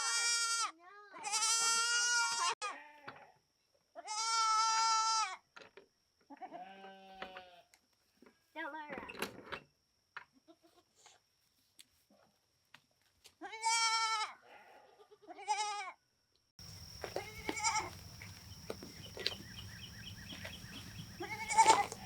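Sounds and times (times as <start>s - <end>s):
farm animal bleating: 0.0s - 3.3s, 4.0s - 5.4s, 6.4s - 7.7s, 13.4s - 16.0s, 16.6s - 22.0s
steady background hum: 16.6s - 22.0s.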